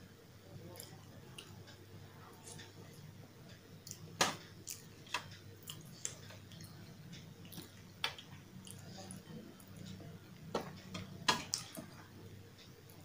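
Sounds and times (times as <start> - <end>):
wet chewing with mouth clicks: 3.8 - 11.9.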